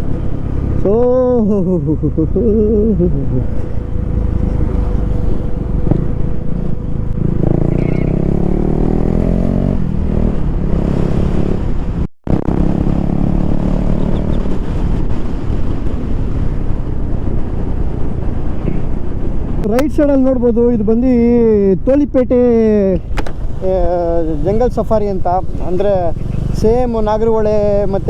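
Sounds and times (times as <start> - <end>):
motorcycle engine running: 0.0 - 11.6, 23.3 - 28.0
wind rumble on microphone: 0.0 - 28.0.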